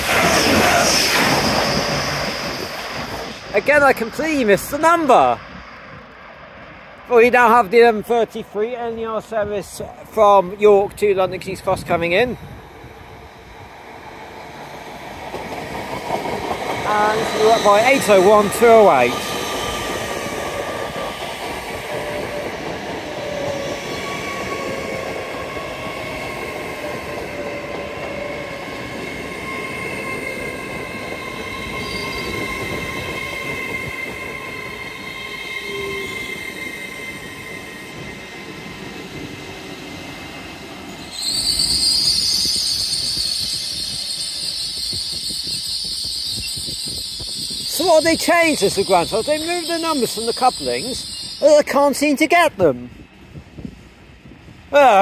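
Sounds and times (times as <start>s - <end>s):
train running noise: 0.0s - 55.0s
high-pitched brake squeal: 0.1s - 4.1s, 16.9s - 20.4s, 28.2s - 38.2s, 40.9s - 51.8s
electric train motors whining: 40.8s - 51.4s.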